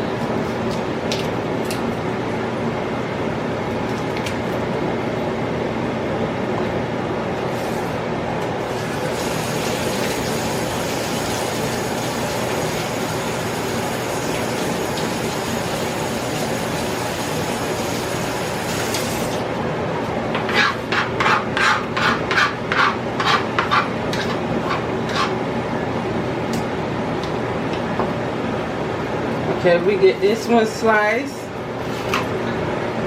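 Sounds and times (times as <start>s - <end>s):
steady background hum: 0.0s - 33.0s.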